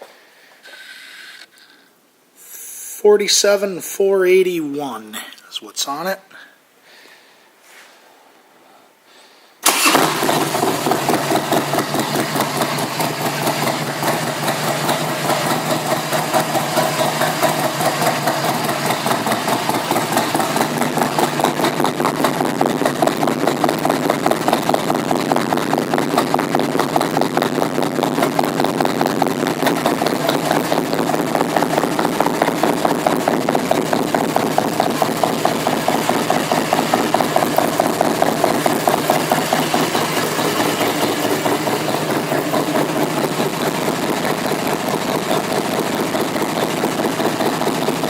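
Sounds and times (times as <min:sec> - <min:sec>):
motorcycle engine starting and idling: 0:09.6 - 0:48.0.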